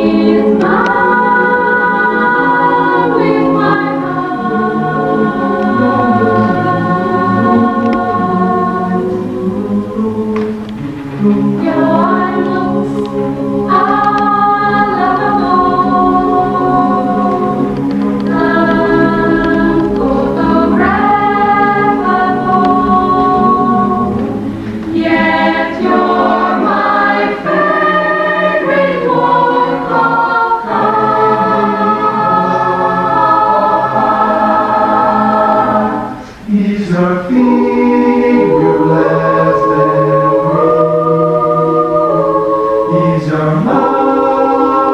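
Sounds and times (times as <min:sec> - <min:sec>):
choir singing in harmony: 0:00.0 - 0:44.9.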